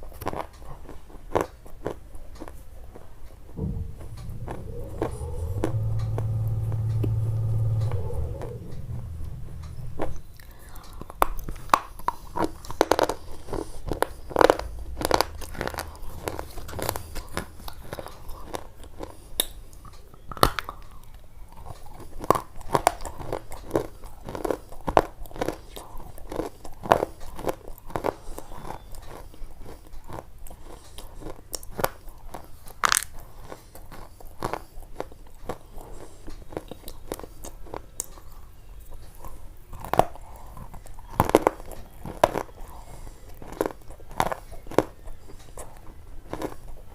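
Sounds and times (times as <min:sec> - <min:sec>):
crunching crisp food: 0:00.0 - 0:02.6, 0:20.2 - 0:46.9.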